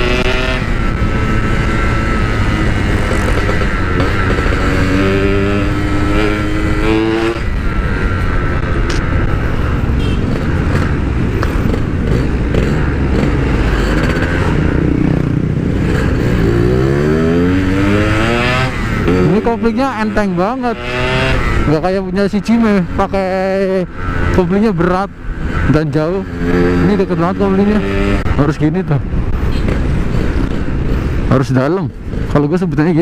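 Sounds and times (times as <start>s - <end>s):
two-stroke motorcycle engine revving: 0.0s - 31.3s.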